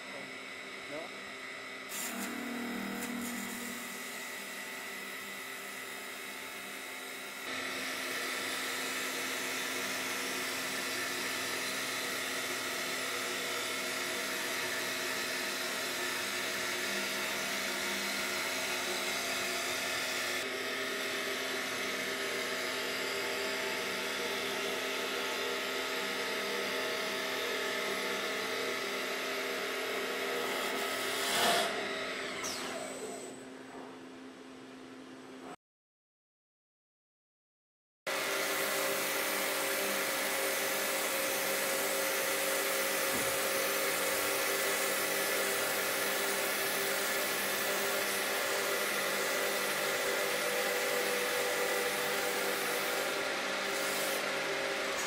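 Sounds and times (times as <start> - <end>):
wood lathe whining: 1.9 - 33.4, 38.1 - 55.0.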